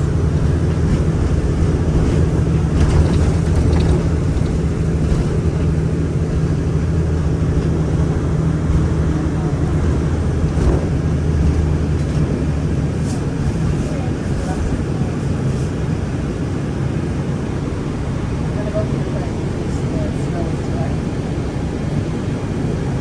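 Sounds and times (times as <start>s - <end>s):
bus engine drone: 0.0s - 23.0s
road rumble: 0.0s - 23.0s
faint rattles: 0.4s - 8.0s.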